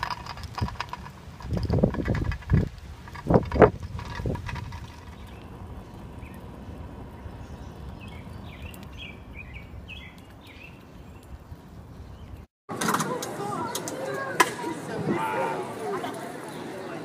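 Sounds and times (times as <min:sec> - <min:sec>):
bird chirping: 0:04.9 - 0:12.5.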